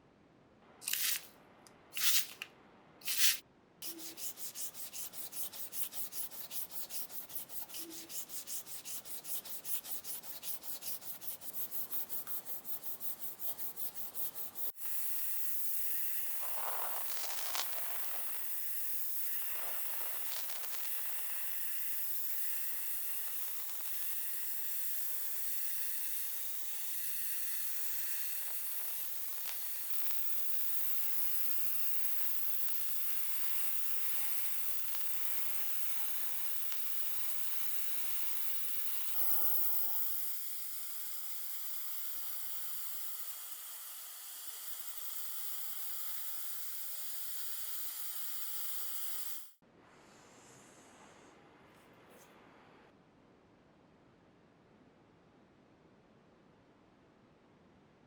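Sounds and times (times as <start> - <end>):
short scrapes: 0.8 - 1.3, 1.9 - 11.5
sandpaper strokes: 3.0 - 14.8
steady hiss: 3.0 - 51.4.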